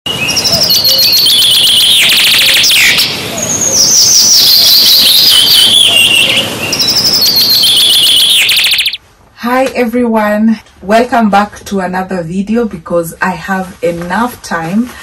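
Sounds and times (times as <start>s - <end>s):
bird trilling: 0.2s - 9.0s
bird whistling descending notes: 0.2s - 9.0s.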